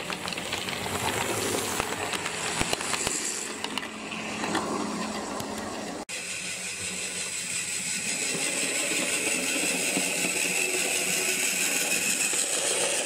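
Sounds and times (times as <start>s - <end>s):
model train motor whine: 0.0s - 13.0s
wheels rattling on rails: 0.0s - 13.0s.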